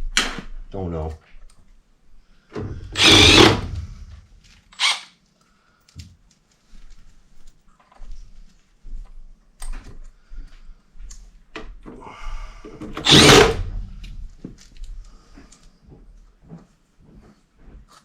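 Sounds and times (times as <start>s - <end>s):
cordless power driver running: 3.0s - 3.8s, 4.8s - 5.0s, 13.0s - 13.6s.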